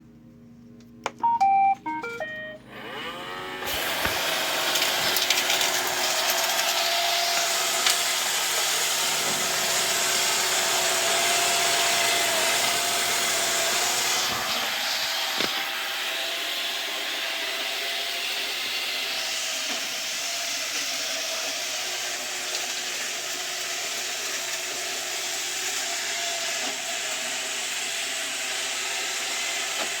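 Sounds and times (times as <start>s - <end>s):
robot vacuum beeping tune: 1.2s - 3.2s
robot vacuum motor hissing: 2.8s - 18.1s.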